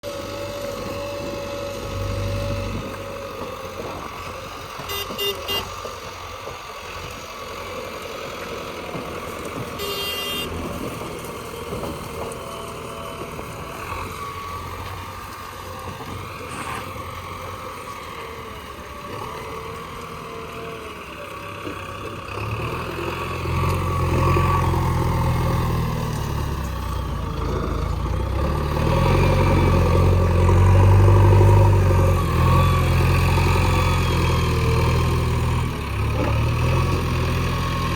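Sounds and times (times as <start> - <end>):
backhoe diesel engine: 0.0 - 37.9.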